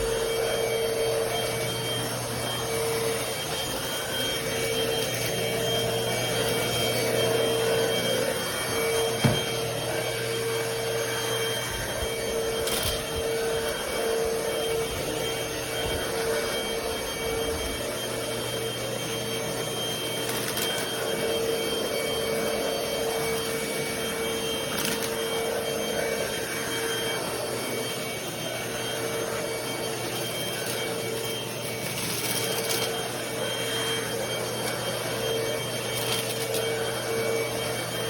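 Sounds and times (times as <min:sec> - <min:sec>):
stick vacuum cleaner running: 0:00.0 - 0:38.0.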